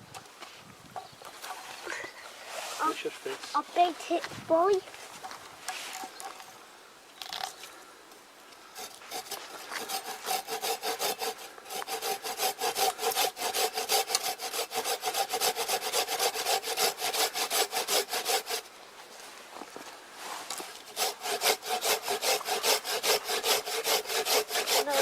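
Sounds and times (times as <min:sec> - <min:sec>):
hand saw cutting wood: 0:08.8 - 0:18.7, 0:20.5 - 0:25.0.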